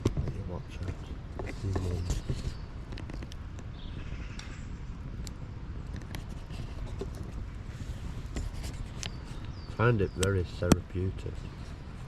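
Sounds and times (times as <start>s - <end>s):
campfire crackling and popping: 0.0s - 6.2s.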